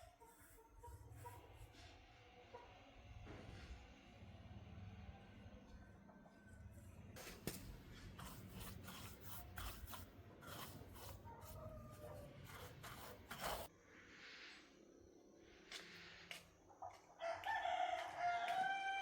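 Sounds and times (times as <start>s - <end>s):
faint scraping and rubbing: 7.9s - 14.7s.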